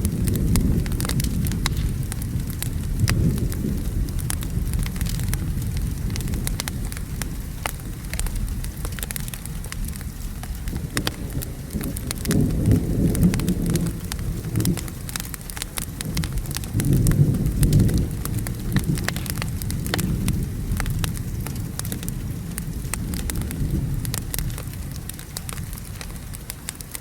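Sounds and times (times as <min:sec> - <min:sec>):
steady rain: 0:00.0 - 0:27.0
thunder rumbling: 0:00.0 - 0:27.0
wood fire crackling: 0:00.0 - 0:27.0.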